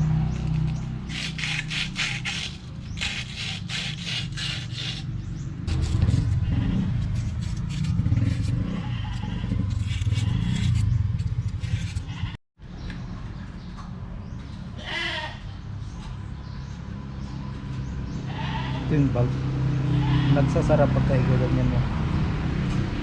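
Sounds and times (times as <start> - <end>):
low rumbling: 0.0 - 12.4
animal bleating: 6.0 - 7.3, 8.4 - 10.7, 11.7 - 12.4, 14.8 - 15.6, 18.2 - 19.2, 19.9 - 20.6.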